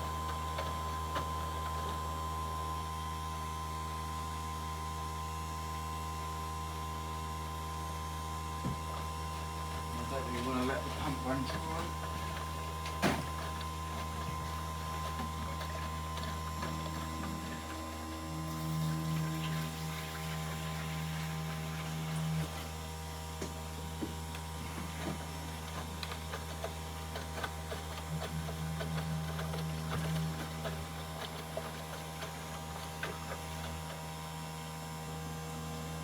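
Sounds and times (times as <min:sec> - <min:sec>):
washing machine pump humming: 0:00.0 - 0:36.0.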